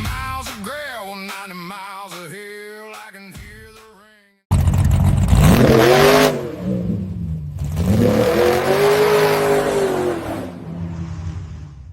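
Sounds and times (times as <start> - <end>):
car engine revving: 4.5 - 11.9.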